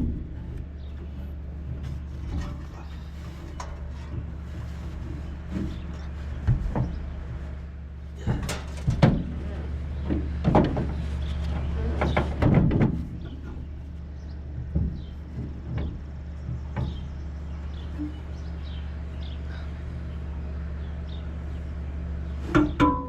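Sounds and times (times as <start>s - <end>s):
metal knocks and clunks: 0.0s - 7.2s, 8.2s - 17.2s, 22.5s - 23.0s
steady low hum: 0.0s - 23.0s.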